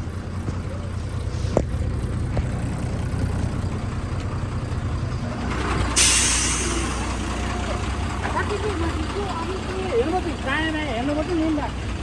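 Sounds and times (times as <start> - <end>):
diesel engine idling: 0.0 - 12.0
loud hiss of released air: 5.9 - 7.4.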